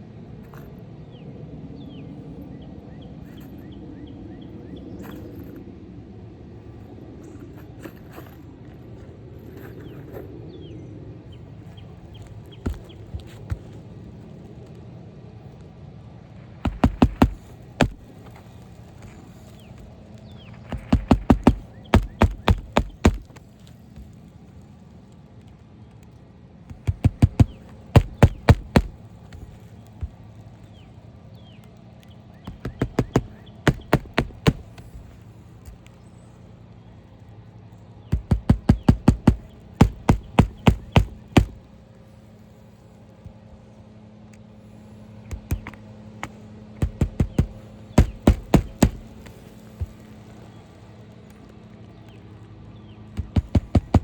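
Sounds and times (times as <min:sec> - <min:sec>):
hammer nailing roof shingle: 0:12.1 - 0:13.8, 0:16.6 - 0:24.2, 0:26.7 - 0:30.5, 0:32.4 - 0:36.0, 0:38.1 - 0:41.8, 0:45.2 - 0:50.4, 0:53.2 - 0:54.0.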